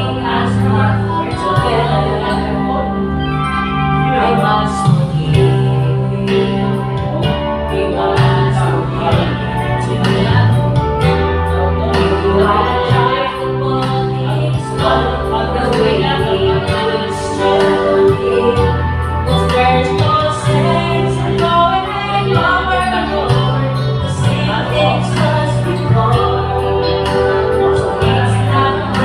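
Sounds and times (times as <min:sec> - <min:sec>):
instrumental backing with bass: 0:00.0 - 0:29.0
person singing: 0:00.0 - 0:29.0.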